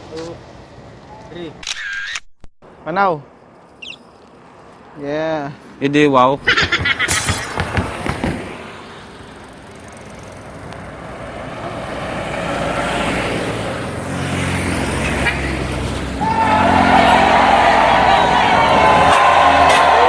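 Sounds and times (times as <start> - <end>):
vehicle approaching: 6.2 - 20.0.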